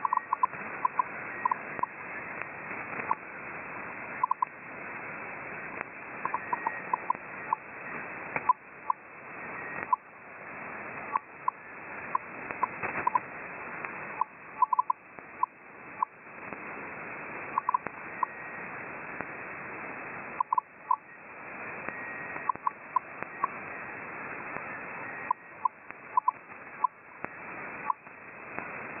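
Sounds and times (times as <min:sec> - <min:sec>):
shortwave radio hiss: 0:00.0 - 0:29.0.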